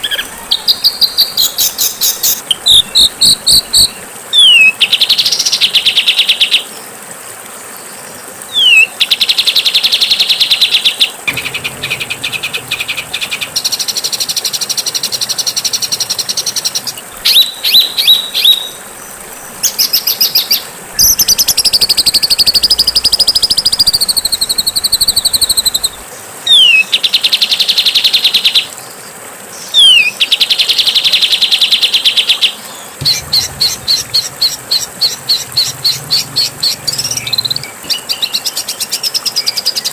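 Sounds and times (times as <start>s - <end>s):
songbird whistles and trills: 0.0s - 5.6s, 8.5s - 8.9s, 17.2s - 27.0s, 29.8s - 30.2s.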